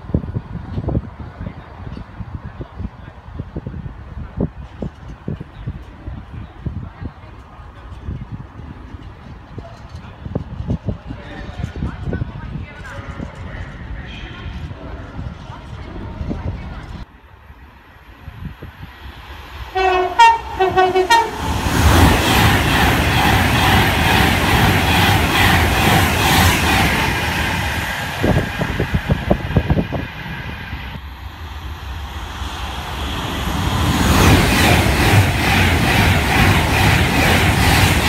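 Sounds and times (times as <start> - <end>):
train passing with rumble: 0.0 - 38.0
two-tone train horn blasts: 19.7 - 21.5.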